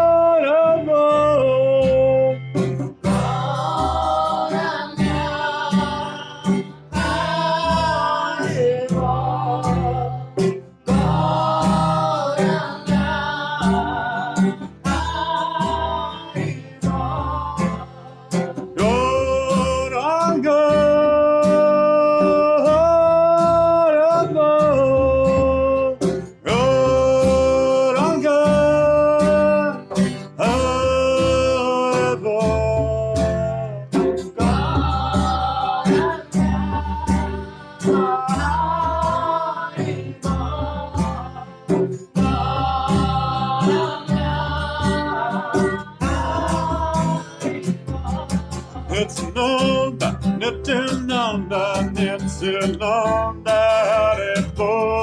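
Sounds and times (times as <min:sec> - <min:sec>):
strummed acoustic guitar: 0:00.0 - 0:55.0
voices singing a mantra: 0:03.0 - 0:20.8, 0:34.3 - 0:50.1.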